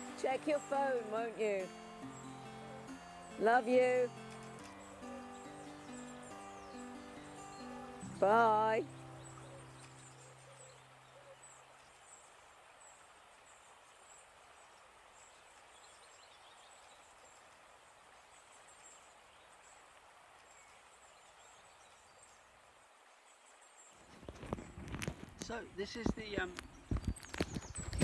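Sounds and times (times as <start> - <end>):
faint high chirping: 0.0 - 11.9.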